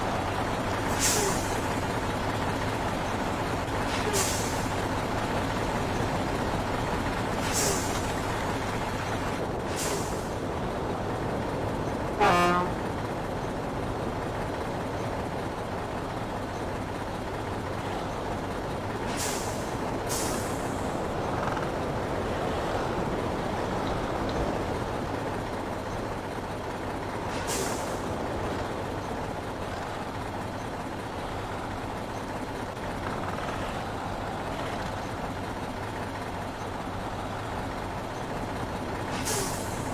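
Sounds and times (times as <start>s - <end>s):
heavy truck running: 0.0s - 39.9s
air brake hisses: 0.9s - 1.6s, 7.4s - 8.0s, 9.7s - 10.3s, 19.1s - 20.8s, 27.3s - 28.0s, 39.1s - 39.9s
truck horn toot: 12.2s - 12.9s.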